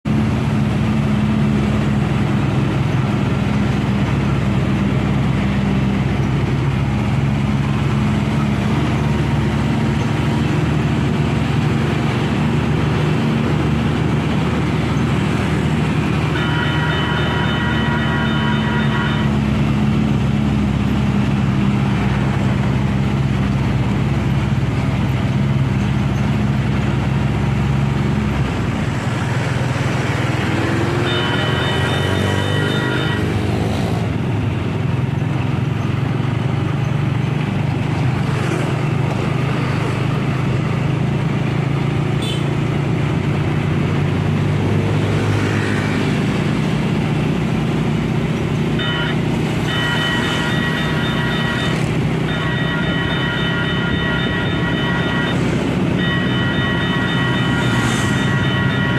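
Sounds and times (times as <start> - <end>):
heavy vehicle engine running: 0.0 - 58.9
multi-tone horn: 16.2 - 19.6, 30.6 - 33.7, 42.2 - 42.5, 48.8 - 58.9.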